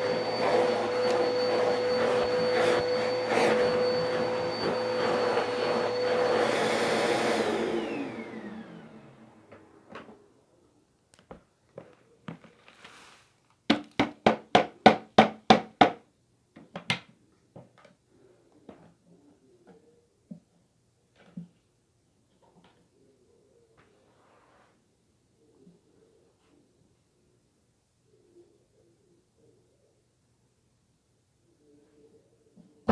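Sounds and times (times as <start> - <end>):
appliance motor whining: 0.0 - 10.2.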